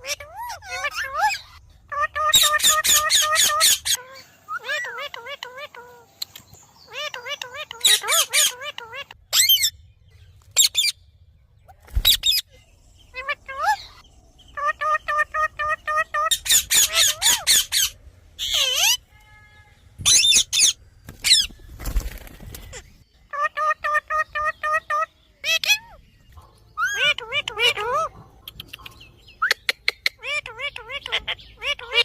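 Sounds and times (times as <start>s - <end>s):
parrot squawking: 0.0s - 6.1s, 6.9s - 9.7s, 10.6s - 11.0s, 13.1s - 19.1s, 20.0s - 21.5s, 23.3s - 26.0s, 26.8s - 32.0s.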